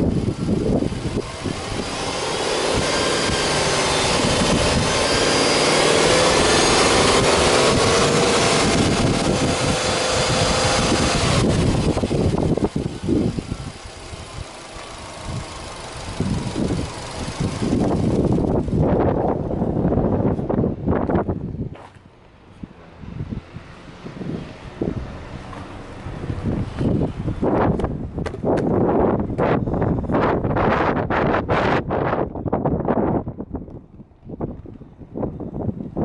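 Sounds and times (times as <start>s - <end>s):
car engine revving: 0.0s - 19.9s.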